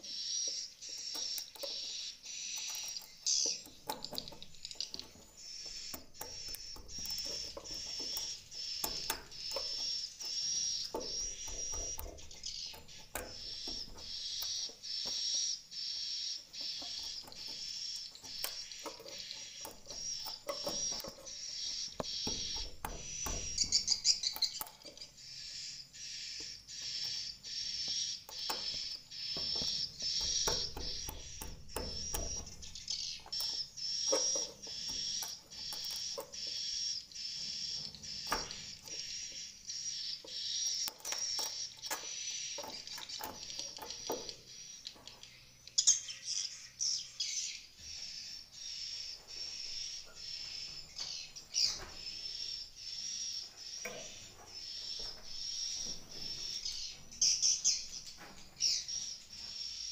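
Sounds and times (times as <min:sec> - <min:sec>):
sharp clicks: 0:00.2 - 0:15.4, 0:26.4 - 0:44.4.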